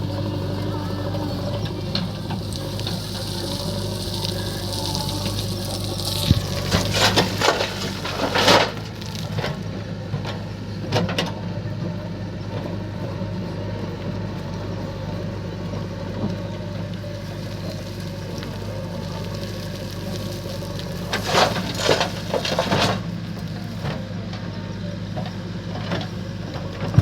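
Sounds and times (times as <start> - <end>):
stones crashing into trolley: 0.0 - 9.6, 17.2 - 23.1
diesel engine running: 0.0 - 27.0.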